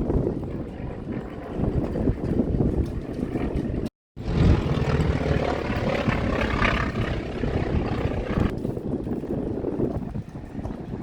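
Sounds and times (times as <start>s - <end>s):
propeller airplane flying past: 0.0s - 8.7s
wind rumbling on microphone: 0.0s - 11.0s.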